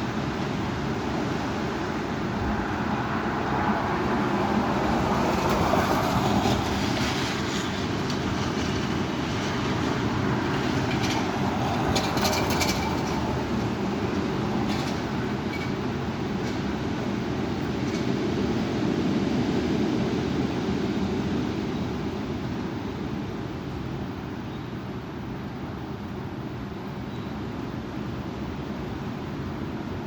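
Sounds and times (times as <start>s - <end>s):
storm wind rushing: 0.5s - 22.3s.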